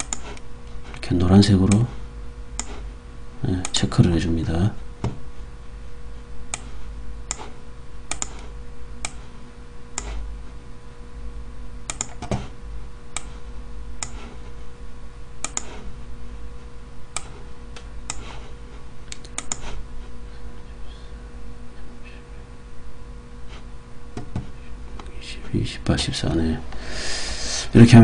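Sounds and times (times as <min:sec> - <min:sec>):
computer clicks: 0:00.0 - 0:00.3, 0:08.1 - 0:08.4, 0:11.9 - 0:12.3, 0:15.4 - 0:15.7, 0:19.1 - 0:19.6
steady low hum: 0:00.0 - 0:28.0.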